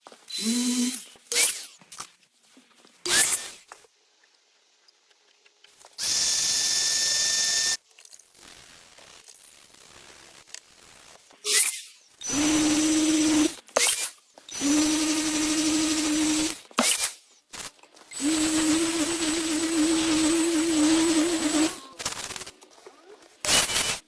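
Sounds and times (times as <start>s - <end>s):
power tool motor running: 0.3s - 1.6s, 3.1s - 3.6s, 6.0s - 7.8s, 12.2s - 17.1s, 18.1s - 22.5s, 23.4s - 24.0s.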